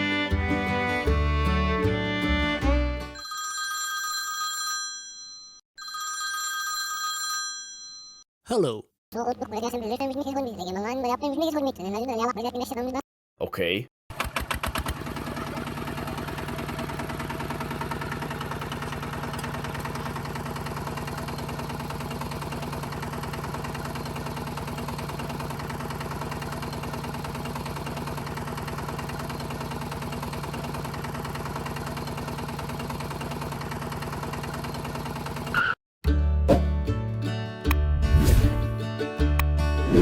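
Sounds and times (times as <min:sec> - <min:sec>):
small engine running: 0:00.0 - 0:03.0, 0:14.1 - 0:35.7.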